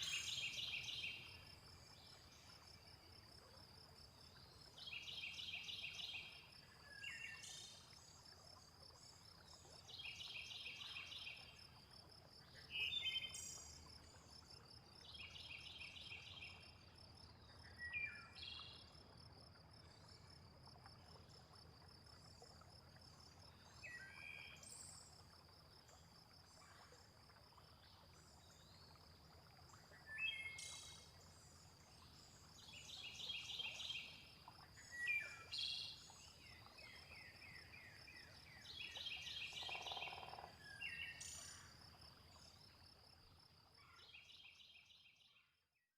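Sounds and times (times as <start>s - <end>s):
insect trill: 39.5s - 41.7s.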